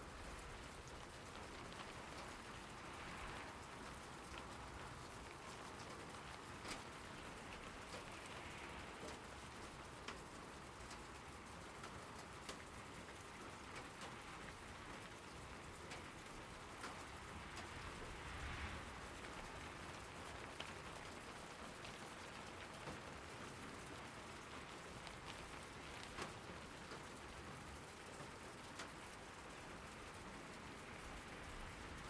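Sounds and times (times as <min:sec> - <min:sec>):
raindrops ticking on a surface: 0:00.0 - 0:32.0
steady rain falling: 0:00.0 - 0:32.0.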